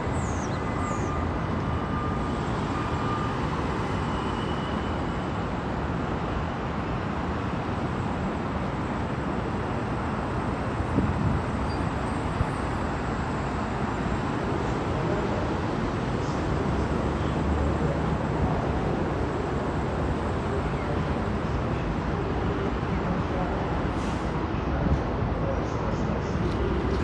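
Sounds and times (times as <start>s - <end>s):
subway train wheels rumbling: 1.1s - 27.0s.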